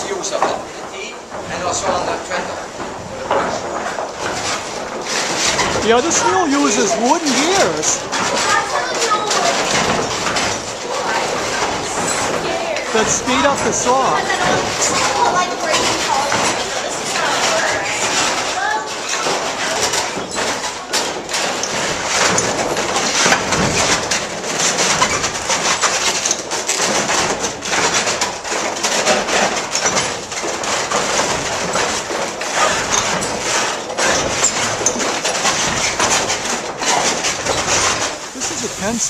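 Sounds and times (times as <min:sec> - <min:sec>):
water-powered sawmill clattering: 0:00.0 - 0:39.0.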